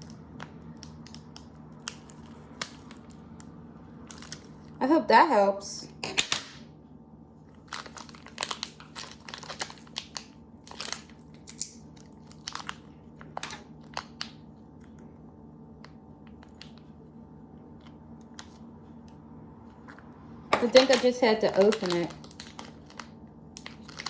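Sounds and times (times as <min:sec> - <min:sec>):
plastic packaging crinkling: 0:07.6 - 0:14.4, 0:20.6 - 0:24.0.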